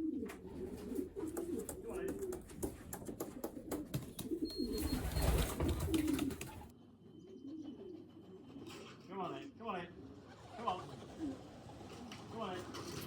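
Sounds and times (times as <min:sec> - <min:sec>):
pigeons cooing: 0:00.0 - 0:13.0
sharp clicks and taps: 0:01.2 - 0:04.6.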